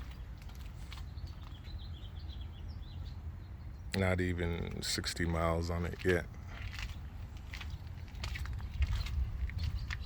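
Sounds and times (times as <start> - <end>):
footsteps crunching on grit: 5.3 - 10.0
wind rumble on microphone: 6.2 - 10.0.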